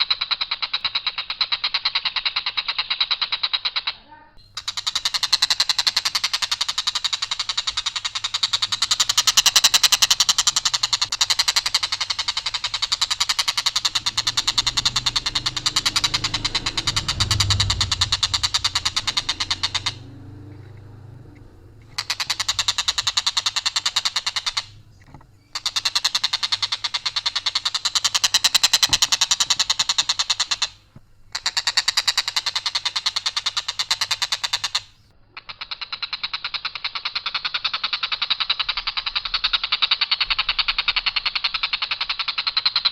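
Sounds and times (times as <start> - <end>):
kingfisher rattling calls: 0.1 - 42.9
low rumble: 8.7 - 25.5.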